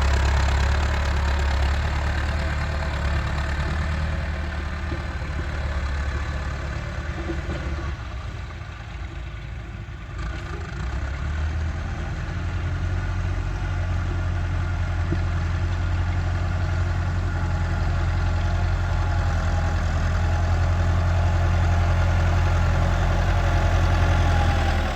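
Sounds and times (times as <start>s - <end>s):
tractor diesel engine running: 0.0s - 24.9s.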